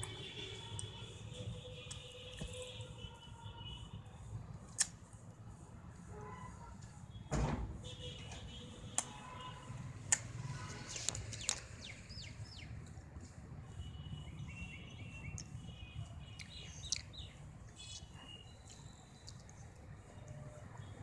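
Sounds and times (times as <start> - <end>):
small birds chirping: 10.8 - 12.9, 13.9 - 19.8.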